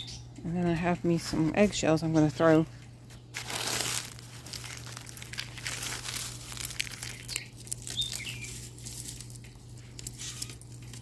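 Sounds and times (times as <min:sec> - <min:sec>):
bird chirping: 0:00.0 - 0:00.4, 0:07.0 - 0:08.6
eggshells crunching: 0:03.3 - 0:11.0.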